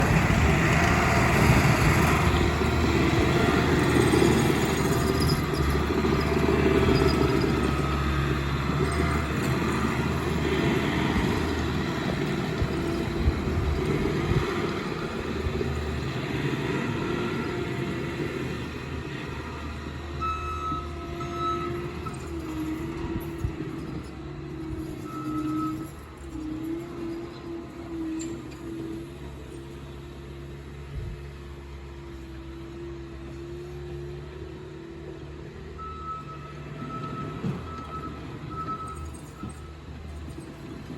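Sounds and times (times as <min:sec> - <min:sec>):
tracked skid steer engine running: 0:00.0 - 0:40.9
short high-pitched squeaks: 0:24.6 - 0:27.3.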